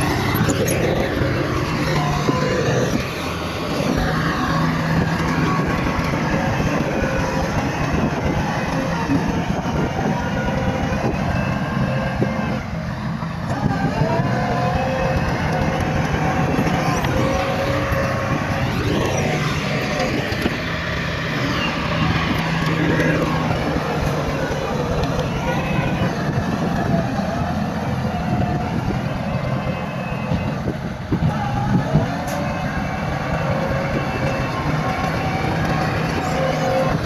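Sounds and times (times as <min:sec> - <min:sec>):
bulldozer diesel engine working: 0:00.0 - 0:37.0.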